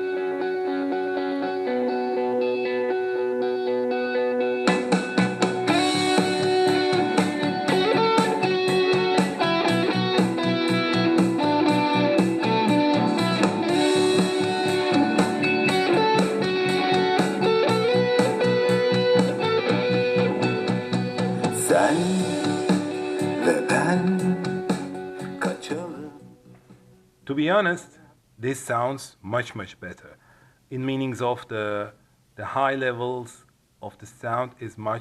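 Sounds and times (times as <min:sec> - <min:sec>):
pop song with electric guitar and beat: 0:00.0 - 0:26.8.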